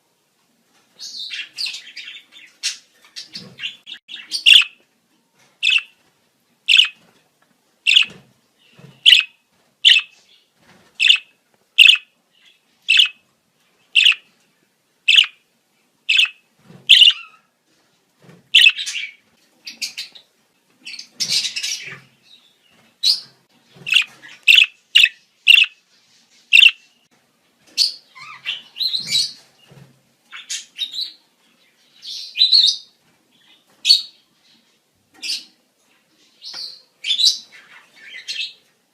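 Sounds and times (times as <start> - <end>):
budgerigars chirping: 1.0 - 4.8, 5.6 - 6.0, 6.7 - 7.0, 7.9 - 10.2, 11.0 - 13.2, 14.0 - 14.3, 15.1 - 15.4, 16.1 - 17.4, 18.6 - 20.2, 23.0 - 25.8, 26.5 - 26.9, 27.8 - 29.4.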